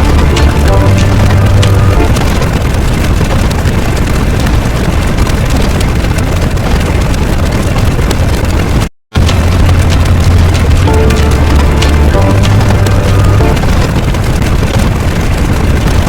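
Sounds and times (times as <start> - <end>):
loud low rumbling: 0.0 - 3.7, 9.2 - 15.0.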